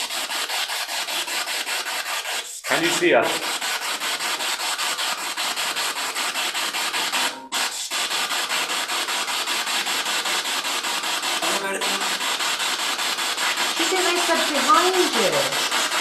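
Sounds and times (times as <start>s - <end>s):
radio static sweeping: 2.7s - 3.5s, 11.4s - 12.3s, 13.7s - 15.5s.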